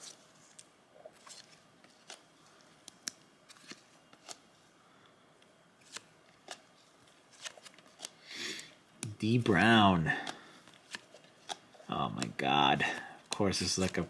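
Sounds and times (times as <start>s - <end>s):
trading cards clicking and rustling: 0.0s - 4.5s, 5.8s - 8.3s, 9.8s - 14.0s.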